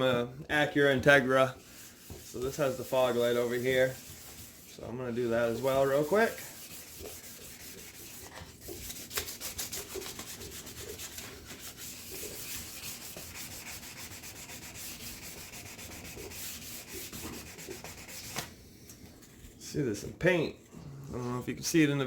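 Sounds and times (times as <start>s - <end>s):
wet sandpaper scrubbing plastic: 0.8s - 18.5s.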